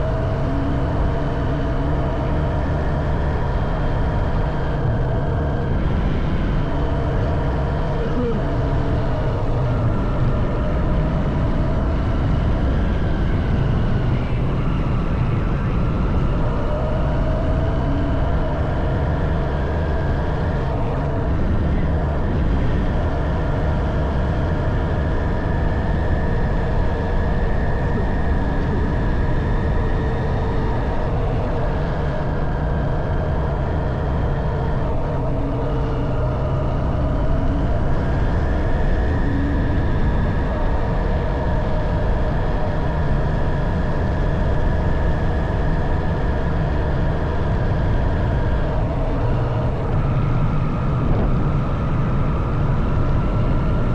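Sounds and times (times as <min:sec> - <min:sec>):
wind and road noise: 0:48.3 - 0:53.9.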